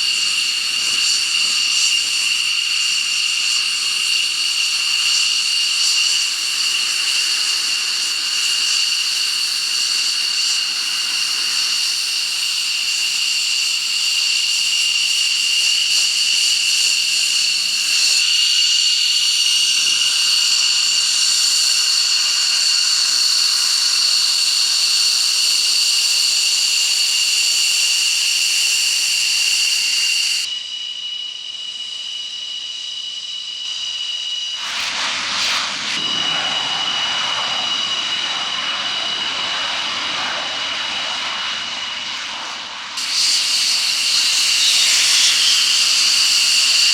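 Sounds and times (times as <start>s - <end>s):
jet engine idling whine: 0.0s - 46.9s
rushing noise: 34.6s - 46.4s.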